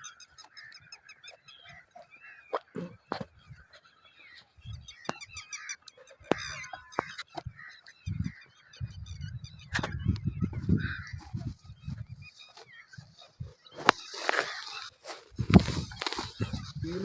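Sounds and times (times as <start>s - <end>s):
starlings chattering and calling: 0.0s - 17.0s.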